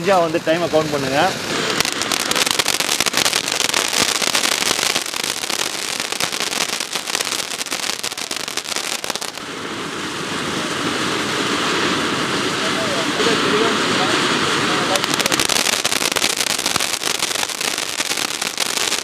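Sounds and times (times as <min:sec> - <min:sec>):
firework fountain crackling hiss: 0:00.0 - 0:19.0.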